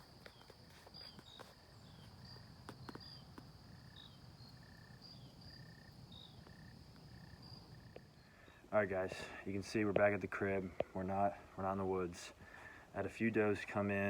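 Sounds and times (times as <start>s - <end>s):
faint crickets chirping: 0.0s - 11.6s.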